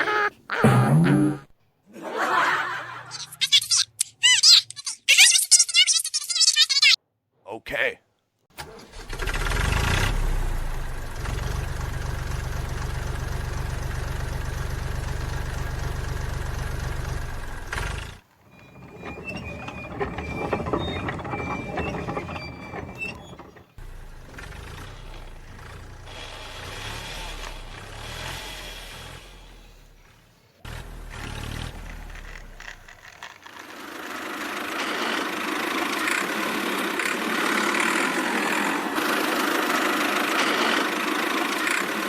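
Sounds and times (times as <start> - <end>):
rattling mechanical clatter: 8.6 - 28.1, 30.7 - 42.0
tractor engine running: 8.6 - 42.0
low engine sound: 8.9 - 42.0.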